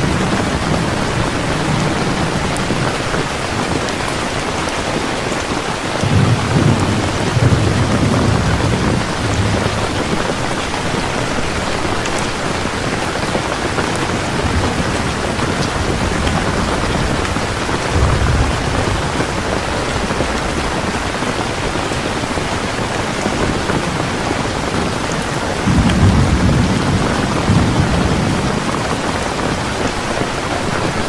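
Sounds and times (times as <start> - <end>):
heavy rain pouring: 0.0 - 31.0
thunder rumbling: 0.0 - 31.0.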